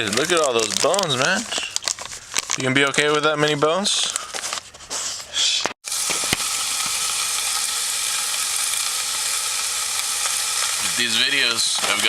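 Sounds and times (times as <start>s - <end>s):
food sizzling in a pan: 5.8s - 12.0s.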